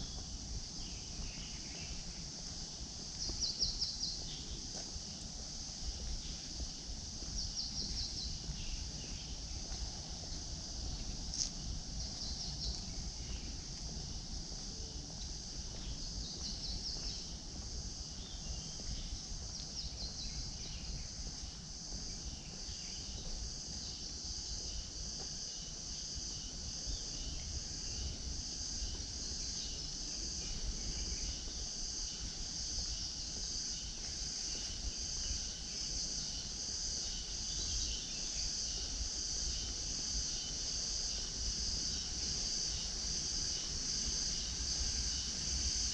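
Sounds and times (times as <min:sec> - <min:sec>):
insects buzzing shrilly: 0:00.0 - 0:45.9.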